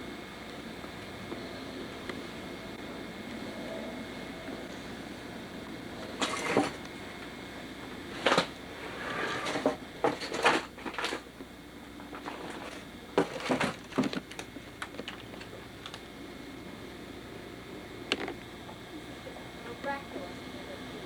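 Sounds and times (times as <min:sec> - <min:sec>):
hard objects knocking and clattering: 0:12.1 - 0:15.5.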